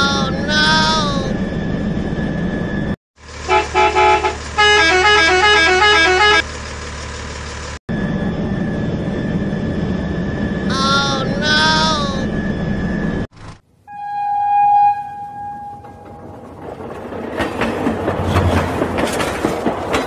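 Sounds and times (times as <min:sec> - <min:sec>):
low hum: 0:07.9 - 0:17.1.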